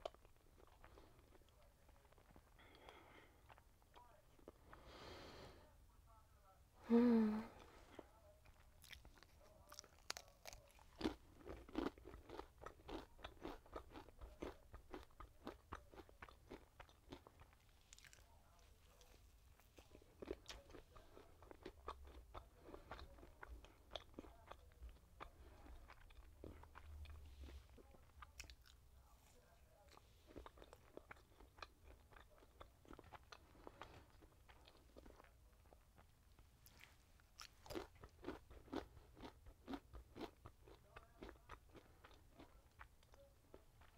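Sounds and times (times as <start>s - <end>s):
small crunches and mouth clicks: 0.0s - 4.8s, 8.4s - 18.3s
person chewing food: 0.0s - 5.4s, 7.5s - 43.9s.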